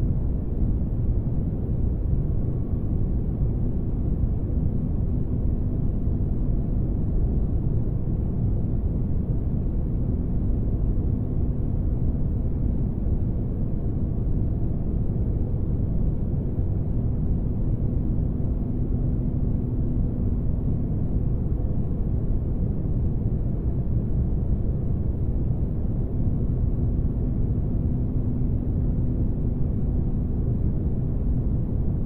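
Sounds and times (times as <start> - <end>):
faint hum: 0.0 - 32.0.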